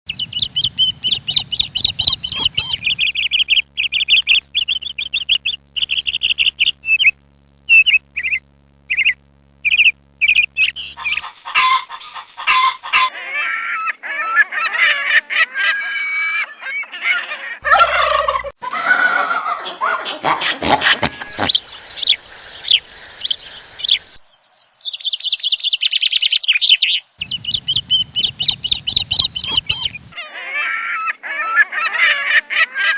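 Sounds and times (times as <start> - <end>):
high-pitched bird chirps and trills: 0.1 - 13.1, 21.3 - 30.2
chatter of many birds: 0.1 - 18.2, 21.3 - 24.2, 25.0 - 32.9.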